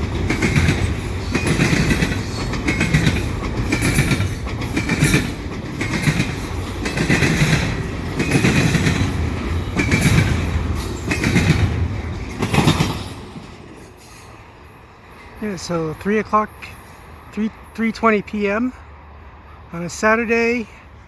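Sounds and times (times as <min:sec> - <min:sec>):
train wheels clacking over rail joints: 0:00.0 - 0:14.4
train rumble: 0:00.0 - 0:21.0.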